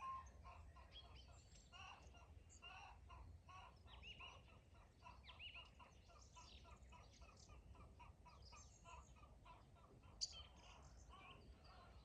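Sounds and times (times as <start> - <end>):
faint chickens clucking: 0.0 - 12.0
songbirds chirping and trilling: 0.0 - 12.0.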